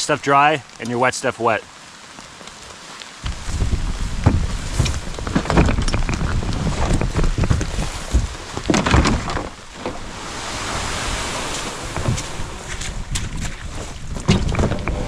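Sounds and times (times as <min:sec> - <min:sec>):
steady hiss: 0:00.0 - 0:08.6
knocks and rustling: 0:03.2 - 0:10.2, 0:11.5 - 0:15.0
wind buffeting microphone: 0:03.2 - 0:15.0.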